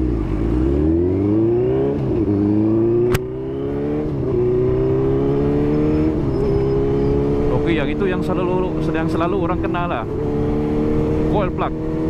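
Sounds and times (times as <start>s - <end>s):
motorcycle engine accelerating: 0.0s - 12.0s
sharp click: 3.1s - 3.3s.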